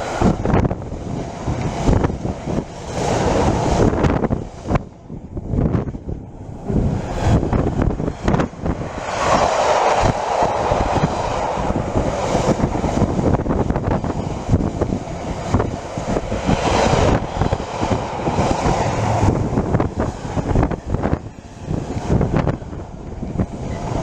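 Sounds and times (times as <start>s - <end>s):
wind buffeting microphone: 0.0s - 24.0s
train running past: 6.0s - 24.0s.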